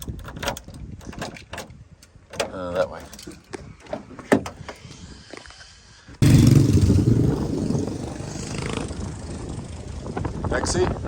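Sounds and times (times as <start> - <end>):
car engine and road noise: 6.2 - 10.6.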